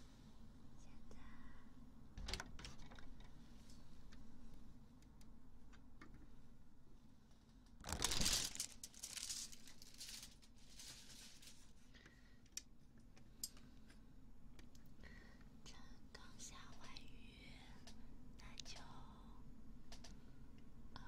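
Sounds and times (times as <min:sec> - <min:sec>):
rustling and scratching near microphone: 0:07.8 - 0:11.8.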